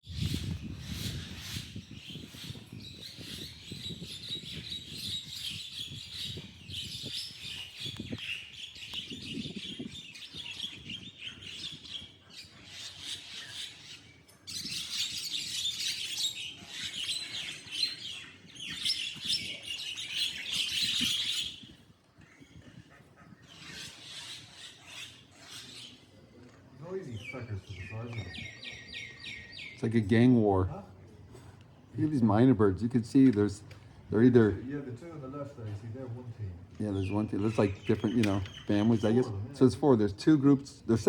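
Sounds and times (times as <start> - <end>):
mynas chattering and squawking: 10.5 - 26.4.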